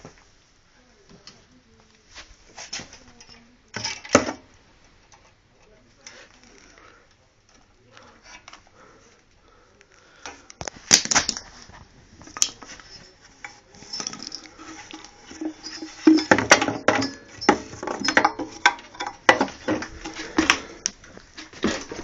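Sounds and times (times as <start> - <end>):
metallic clinks and knocks: 12.3 - 20.9.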